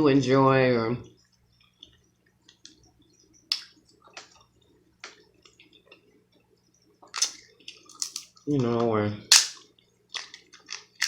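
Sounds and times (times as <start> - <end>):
shellfish shells cracking: 7.2 - 8.3, 9.3 - 11.0.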